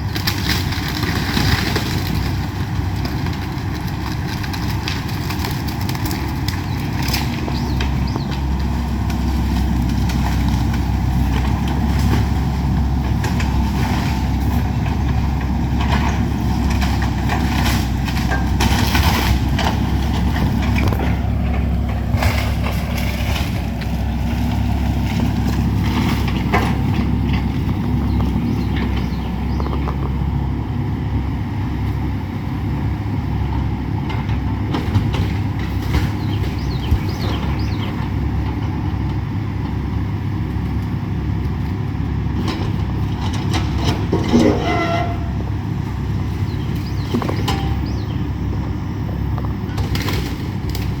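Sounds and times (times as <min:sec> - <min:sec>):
structure cracking and crunching: 0:00.0 - 0:30.2, 0:49.0 - 0:51.0
excavator diesel engine: 0:00.0 - 0:51.0.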